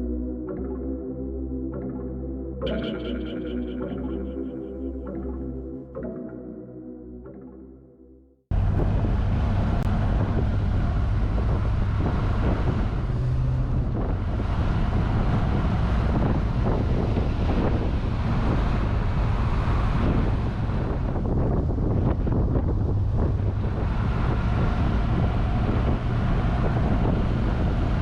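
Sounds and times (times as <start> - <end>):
car engine and road noise: 8.5 - 28.0
wind buffeting microphone: 8.5 - 28.0.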